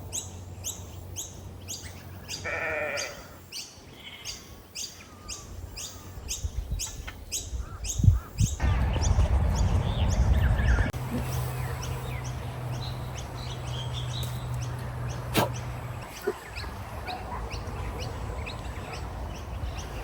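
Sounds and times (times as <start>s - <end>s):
bird chirping: 0.0s - 20.0s
wind rumble on microphone: 6.1s - 15.1s.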